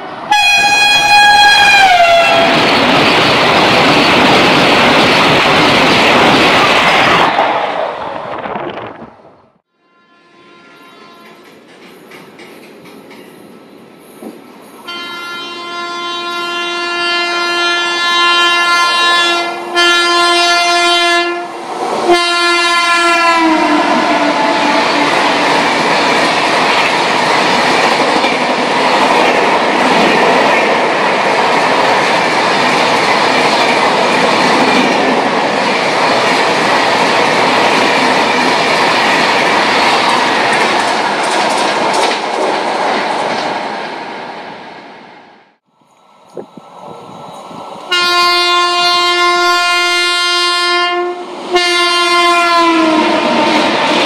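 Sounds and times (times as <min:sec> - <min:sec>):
train coaches clickety-clack: 0:00.0 - 0:09.2, 0:11.2 - 0:14.8, 0:21.6 - 0:44.0, 0:51.3 - 0:54.0
locomotive horn: 0:00.3 - 0:02.6, 0:09.7 - 0:11.4, 0:14.9 - 0:25.4, 0:47.9 - 0:54.0.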